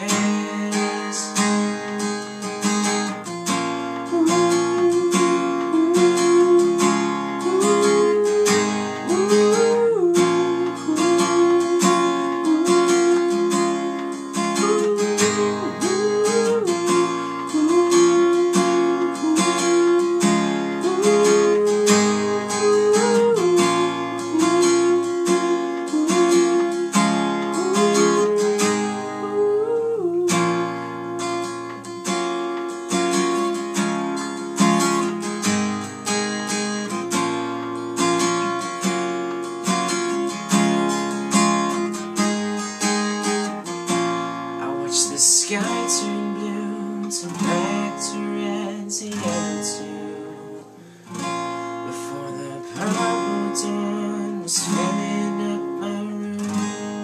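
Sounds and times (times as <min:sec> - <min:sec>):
acoustic guitar strumming chords: 0:00.0 - 0:57.0
sliding held melody line: 0:03.9 - 0:31.8.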